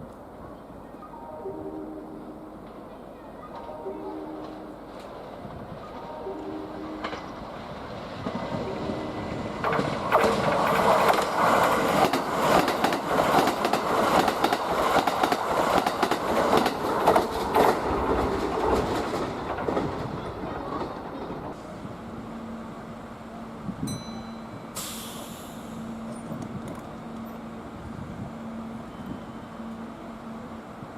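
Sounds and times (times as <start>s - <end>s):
electric train passing: 0.0s - 30.9s
wheels clattering over rails: 9.3s - 21.6s.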